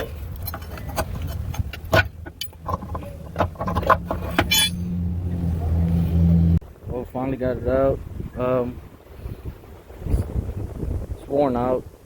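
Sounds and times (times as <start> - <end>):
metal tools clinking: 0.4 - 4.9.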